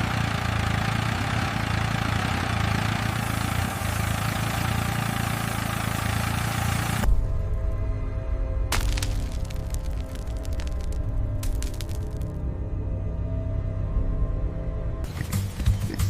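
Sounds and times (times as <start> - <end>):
excavator engine idling: 0.0 - 7.1
music with deep low note: 7.0 - 16.0.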